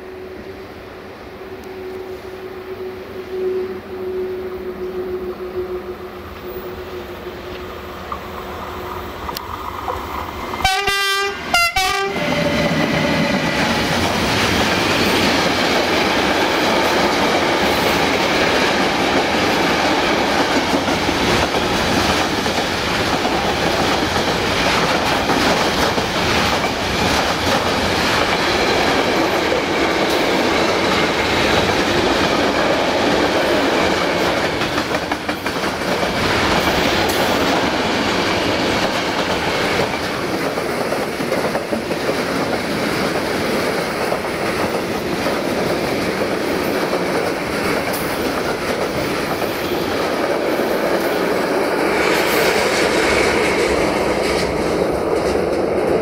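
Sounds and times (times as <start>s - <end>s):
freight train horn blasts: 0.0s - 7.9s, 10.6s - 13.4s
wheels clacking over rail joints: 12.0s - 56.0s.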